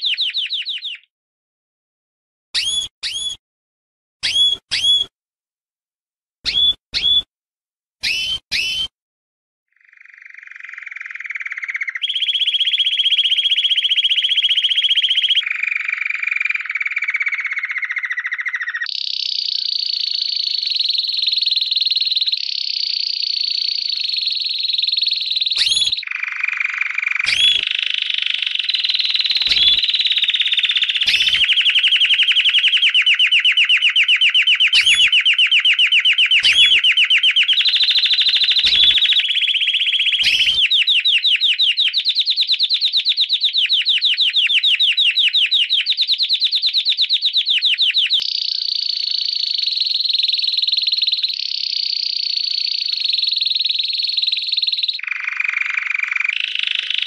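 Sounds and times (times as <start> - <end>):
sharp bird chirps: 0.0 - 1.1, 2.6 - 3.4, 4.2 - 5.1, 6.4 - 7.3, 8.0 - 8.9, 9.8 - 57.0
bird rattling trill: 2.6 - 3.4, 4.2 - 5.1, 6.5 - 7.2, 28.8 - 39.2.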